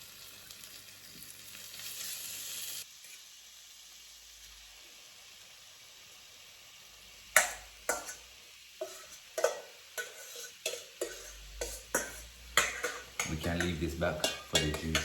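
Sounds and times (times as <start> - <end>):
mushrooms sizzling in oil: 0.0 - 15.0
utensil knocking against pot: 11.0 - 15.0.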